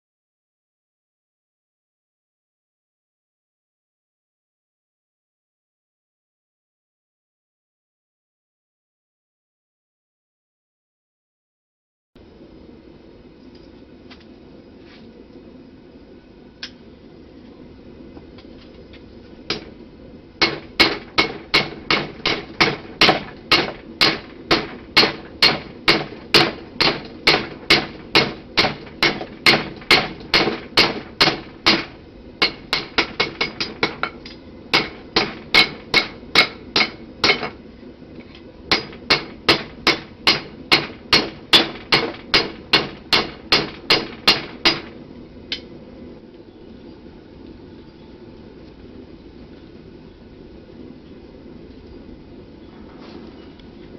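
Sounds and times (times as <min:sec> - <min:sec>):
hammer striking steel on anvil: 0:19.5 - 0:19.7, 0:20.4 - 0:37.6, 0:38.7 - 0:44.9.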